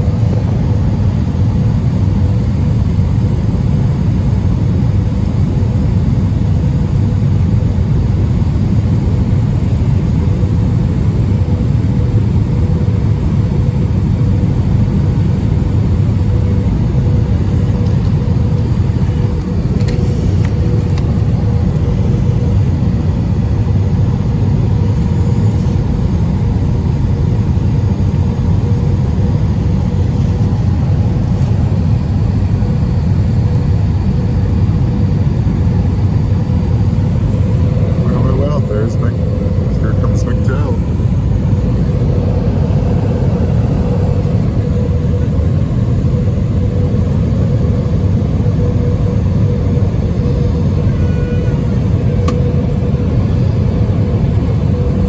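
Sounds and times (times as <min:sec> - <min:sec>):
constant hum: 0:00.0 - 0:55.0
jet engine rumble: 0:00.0 - 0:55.0
rushing airflow: 0:16.3 - 0:55.0.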